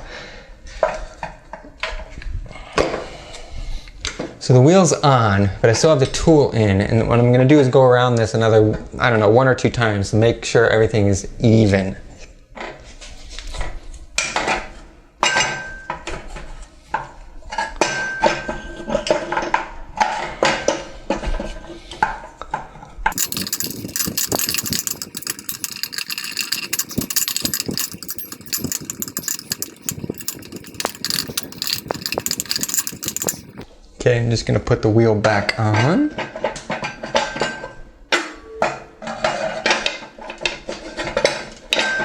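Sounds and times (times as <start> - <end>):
tool clicking and scraping: 23.1 - 33.6.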